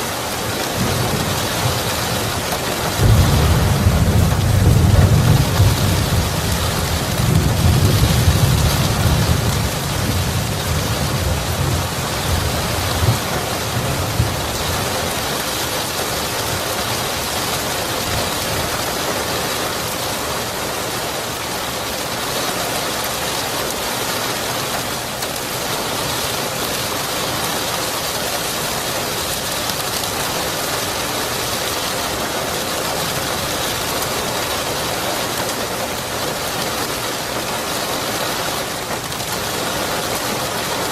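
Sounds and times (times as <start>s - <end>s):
steady rain falling: 0.0s - 40.9s
thunder rumbling: 0.7s - 18.8s.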